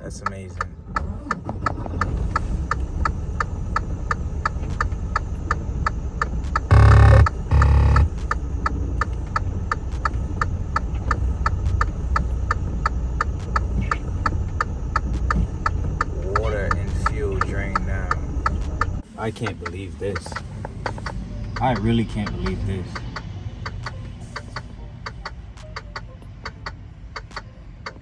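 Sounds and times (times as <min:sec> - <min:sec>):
flasher relay ticking: 0:00.0 - 0:28.0
horn blasts: 0:06.7 - 0:08.2.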